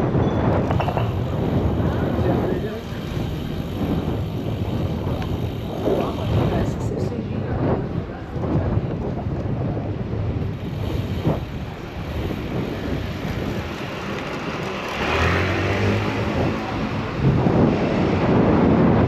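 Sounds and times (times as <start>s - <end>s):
city street traffic rumble: 0.0s - 19.0s
motor vehicle passing close: 10.6s - 18.4s.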